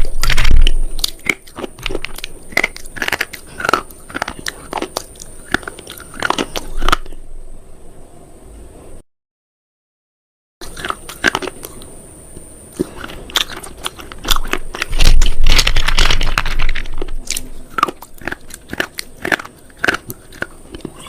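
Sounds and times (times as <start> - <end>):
brittle crunching cracks: 0.0 - 7.1, 12.8 - 21.0.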